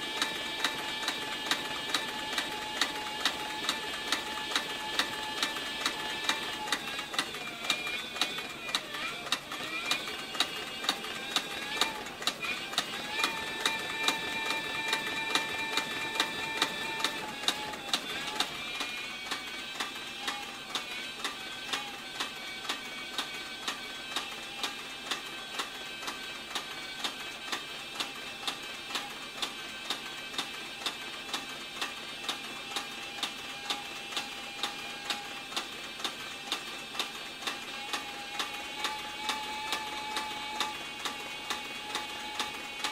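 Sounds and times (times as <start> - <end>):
sewing machine clacking: 0.0 - 42.9.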